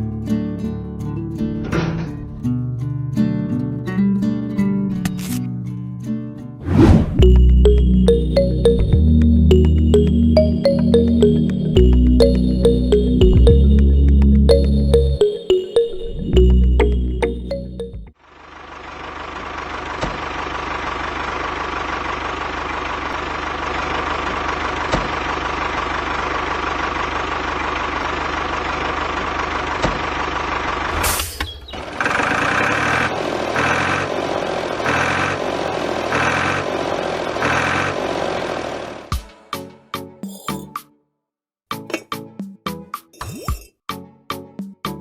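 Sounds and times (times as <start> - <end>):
vehicle engine running: 18.2 - 30.9, 31.9 - 39.1.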